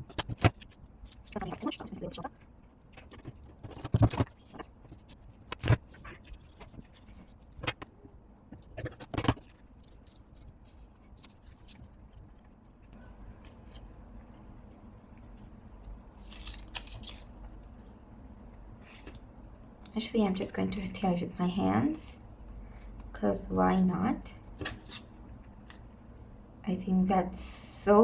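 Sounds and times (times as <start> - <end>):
scissors cutting paper: 13.4 - 17.4, 24.6 - 25.1.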